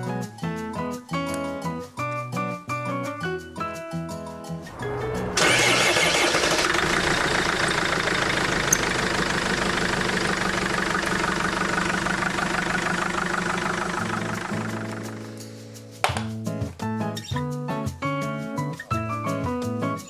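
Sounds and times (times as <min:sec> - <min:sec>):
truck engine idling: 0:04.7 - 0:15.5.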